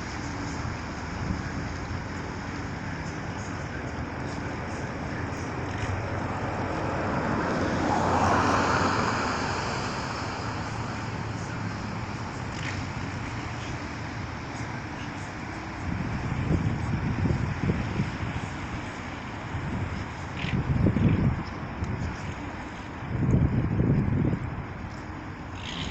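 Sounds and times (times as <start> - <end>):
traffic noise: 0.0 - 25.9
vehicle passing: 2.4 - 14.7.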